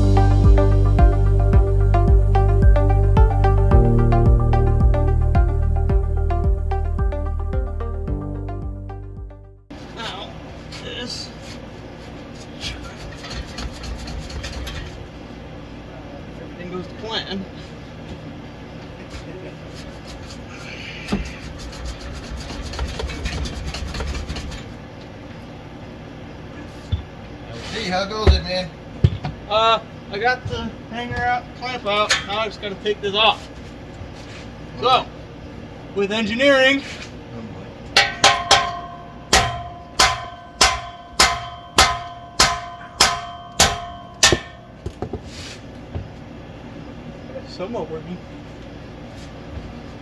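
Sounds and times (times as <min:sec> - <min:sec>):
sharp metallic knock: 0:38.0 - 0:45.0
hammer clanging on steel exhaust: 0:38.0 - 0:45.2.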